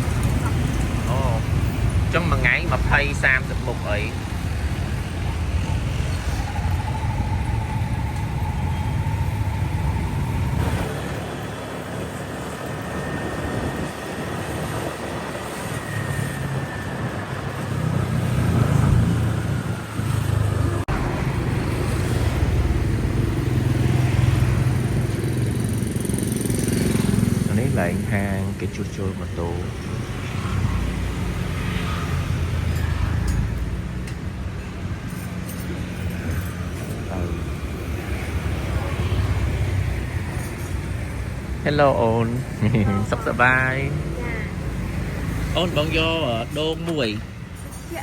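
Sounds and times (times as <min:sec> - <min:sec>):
motorcycle engine and road rumble: 0:00.0 - 0:48.0
traffic: 0:00.0 - 0:48.0.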